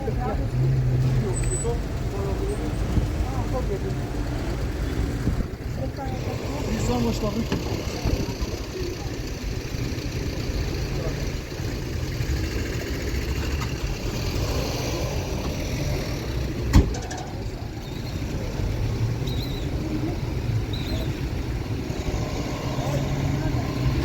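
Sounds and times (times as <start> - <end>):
indistinct voices: 0.0 - 24.0
vehicle engine rumble: 0.0 - 24.0.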